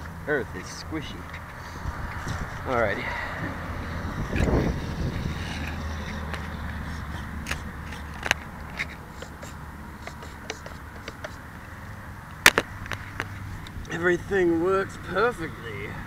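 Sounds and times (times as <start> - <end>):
wind rumbling on microphone: 1.2 - 9.1, 12.6 - 15.2
clicks and scrapes of handling: 4.2 - 11.4, 12.3 - 13.8.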